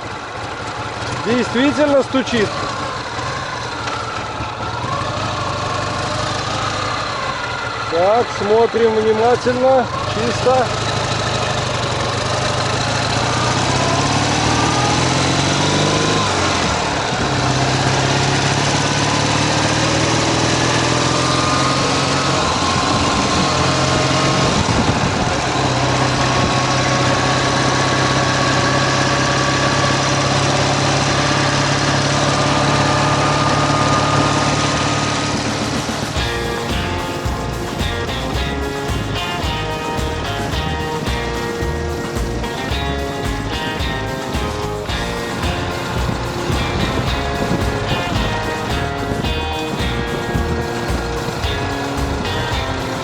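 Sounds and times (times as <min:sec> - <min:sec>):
motorcycle engine pulling under load: 0:00.0 - 0:53.0.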